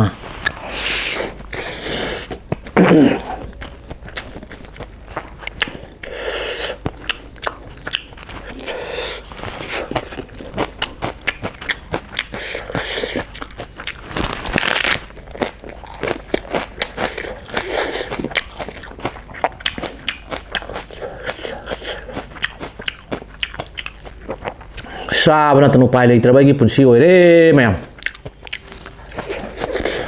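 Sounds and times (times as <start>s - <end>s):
wet chewing clicks: 2.2s - 14.1s, 15.2s - 24.9s, 27.9s - 30.0s.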